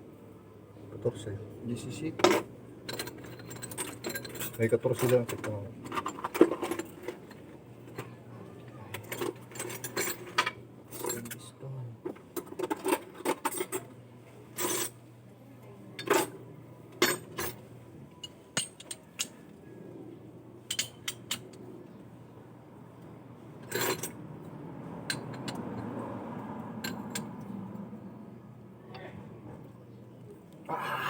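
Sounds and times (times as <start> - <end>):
metal tools clanking: 2.2 - 8.2, 8.9 - 11.5, 17.0 - 17.6, 20.7 - 21.6, 23.6 - 24.2.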